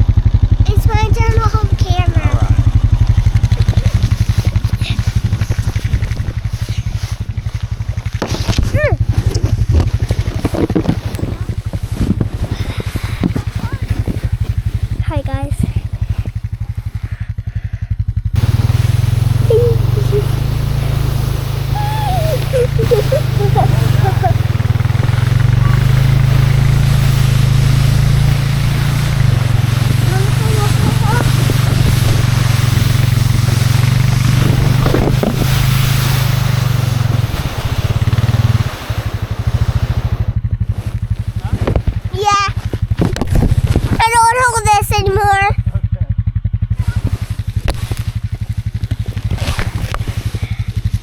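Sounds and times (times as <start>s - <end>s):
four-wheeler engine running: 0.0s - 51.0s
rushing hiss: 18.4s - 40.2s.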